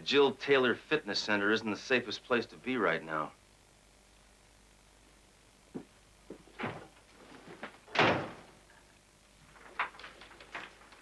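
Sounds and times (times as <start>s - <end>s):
knocks and thuds: 5.7s - 8.6s.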